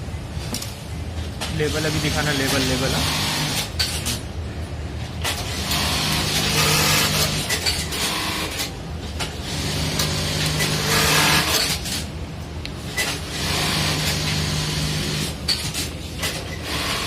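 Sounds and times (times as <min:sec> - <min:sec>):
rapid machine stitching: 0:01.8 - 0:03.7, 0:05.3 - 0:08.7, 0:09.4 - 0:12.0, 0:13.0 - 0:15.4, 0:16.3 - 0:17.0.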